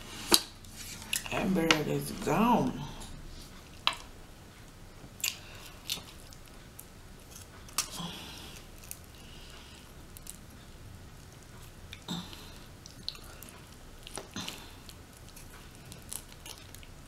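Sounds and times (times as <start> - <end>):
chewing: 5.2 - 10.5, 11.2 - 17.0.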